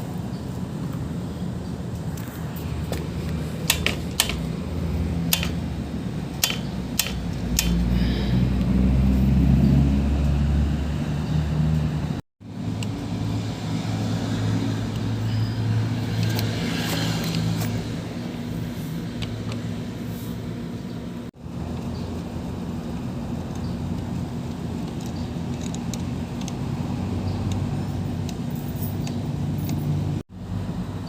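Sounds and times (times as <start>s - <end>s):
brush cutter engine running: 2.6s - 8.8s.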